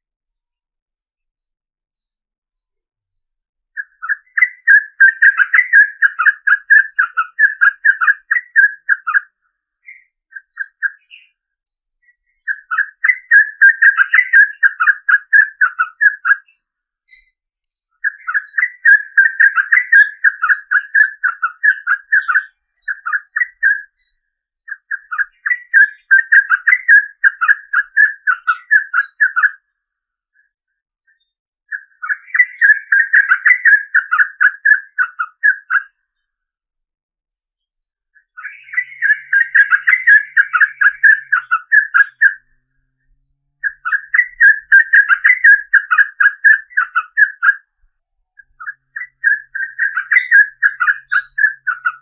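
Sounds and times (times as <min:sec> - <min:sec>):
faint high chirps: 0:00.3 - 0:29.7
bird singing bubbling notes: 0:03.8 - 0:29.6, 0:31.7 - 0:36.0, 0:38.2 - 0:43.0, 0:43.6 - 0:52.0.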